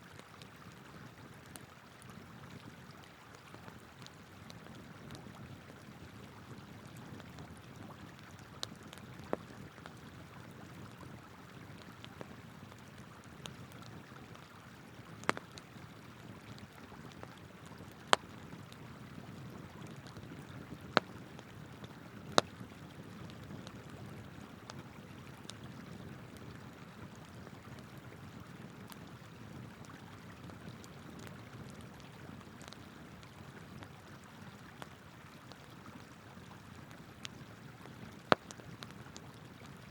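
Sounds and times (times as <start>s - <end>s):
campfire crackling and popping: 0.0s - 39.9s
flowing river water: 0.0s - 39.9s.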